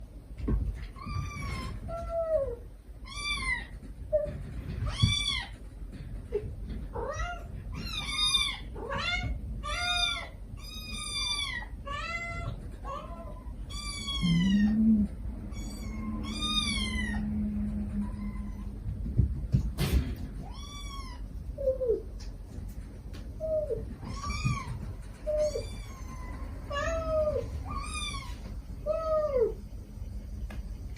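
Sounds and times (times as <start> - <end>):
kittens mewing: 6.3 - 18.9, 23.3 - 29.6
mother cat calling: 7.0 - 19.0, 23.4 - 29.6.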